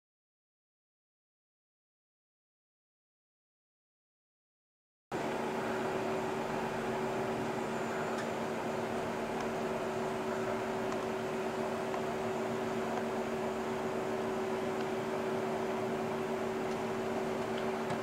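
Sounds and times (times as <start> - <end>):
low mechanical hum: 5.1 - 18.0.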